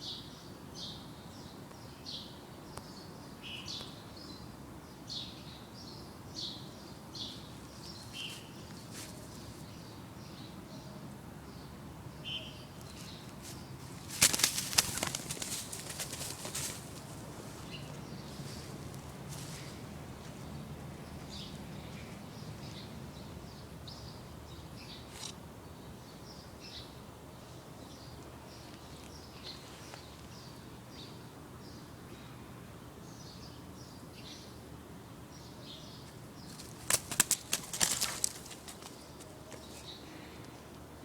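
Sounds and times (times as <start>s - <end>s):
loud rustling and scuffling: 12.9s - 20.4s, 36.5s - 39.8s.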